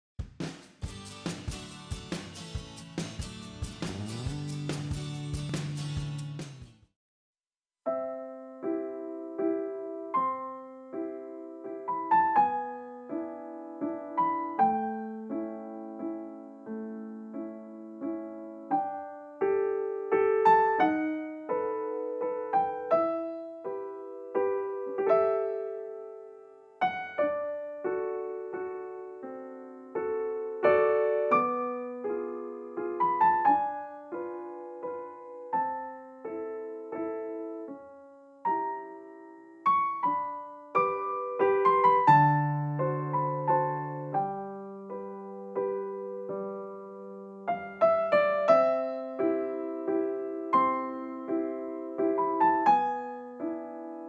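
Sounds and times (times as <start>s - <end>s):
gentle piano music: 7.9s - 54.0s.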